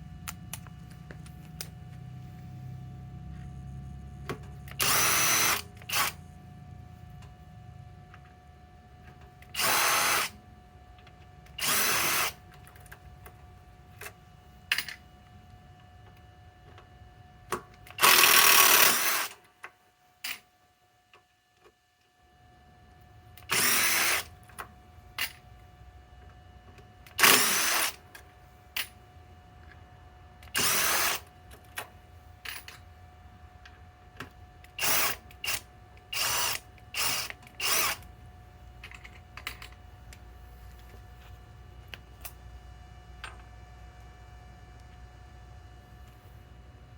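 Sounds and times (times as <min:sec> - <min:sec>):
impact driver running in bursts: 0:04.7 - 0:06.2, 0:09.5 - 0:10.4, 0:11.6 - 0:12.4, 0:18.0 - 0:19.4, 0:23.5 - 0:24.3, 0:27.2 - 0:28.0, 0:30.5 - 0:31.3, 0:34.8 - 0:38.1.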